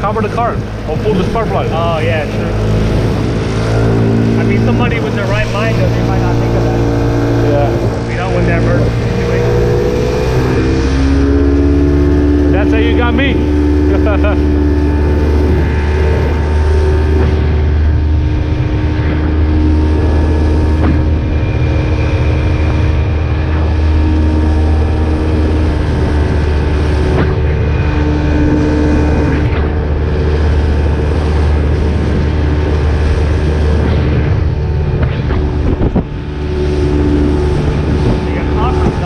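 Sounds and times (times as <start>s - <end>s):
outboard motor running: 0.0s - 39.0s.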